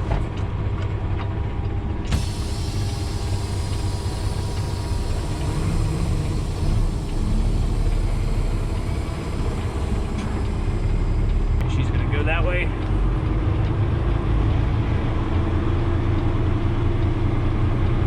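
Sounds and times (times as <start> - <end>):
diesel truck engine rumbling: 0.0 - 18.0
hiss: 2.1 - 11.2.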